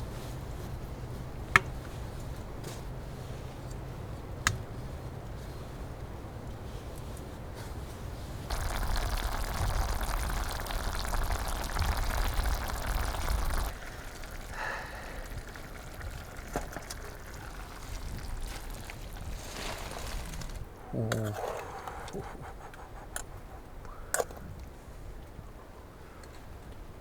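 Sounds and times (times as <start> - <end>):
water rushing: 8.5 - 19.4.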